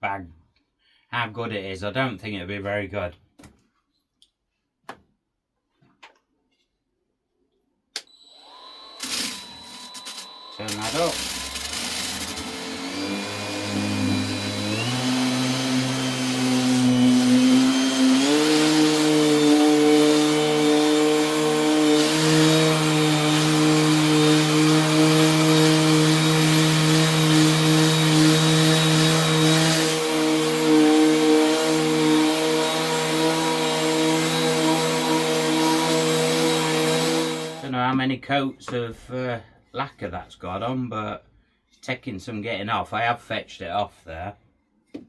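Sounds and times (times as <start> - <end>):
orbital sander motor: 8.0 - 37.7.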